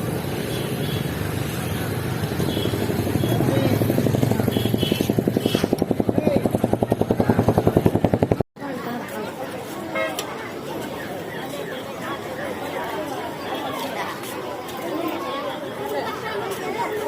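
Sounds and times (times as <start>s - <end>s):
engine throbbing: 1.5s - 8.4s.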